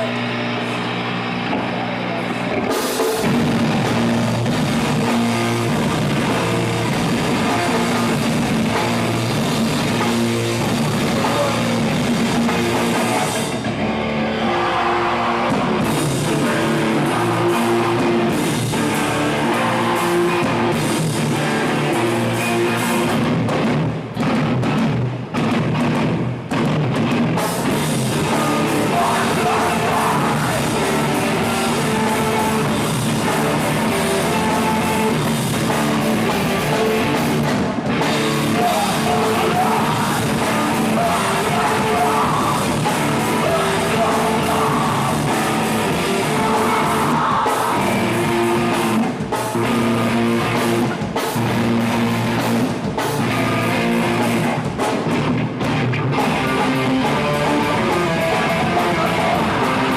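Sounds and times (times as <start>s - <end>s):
distorted electric guitars: 0.0s - 59.9s
drum kit: 0.0s - 59.9s
person shouting singing: 10.9s - 12.0s, 14.2s - 20.8s, 28.0s - 35.2s, 38.2s - 48.8s.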